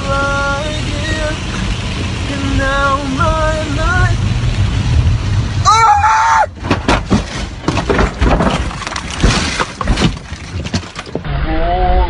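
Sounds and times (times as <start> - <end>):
car crash impacts: 6.4 - 11.3
glass shattering: 7.0 - 11.2.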